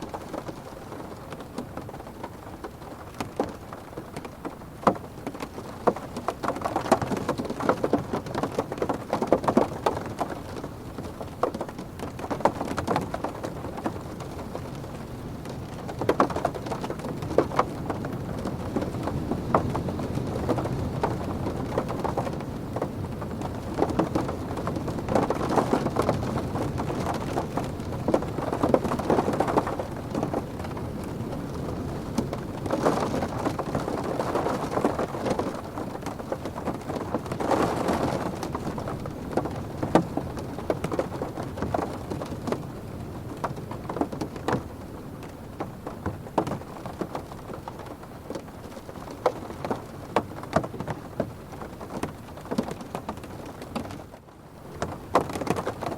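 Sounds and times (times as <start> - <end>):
rain drumming on car roof: 0.0 - 55.9.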